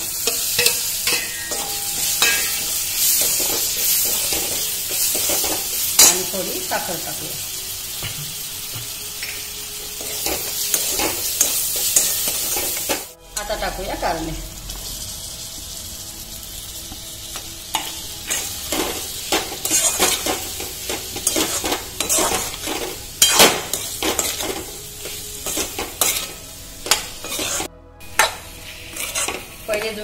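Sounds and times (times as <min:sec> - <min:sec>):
vegetables sizzling in oil: 0:00.0 - 0:30.0
wooden spatula scraping a pan: 0:27.2 - 0:27.7, 0:28.8 - 0:29.5.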